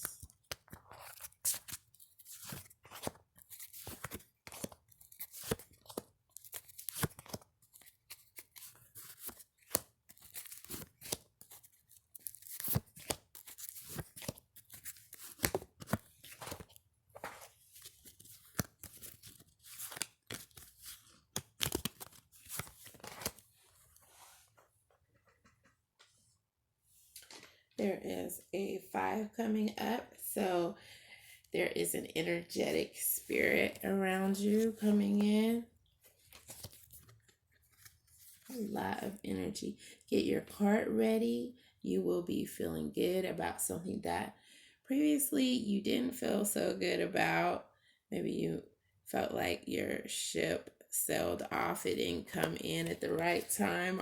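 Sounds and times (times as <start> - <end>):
cards being shuffled: 0.0 - 23.5, 36.1 - 38.6.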